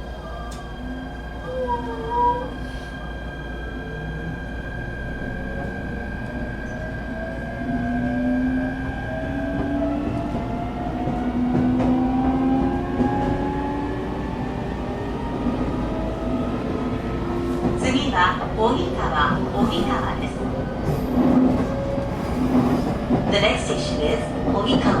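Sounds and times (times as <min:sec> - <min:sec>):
train low rumble: 0:00.0 - 0:25.0.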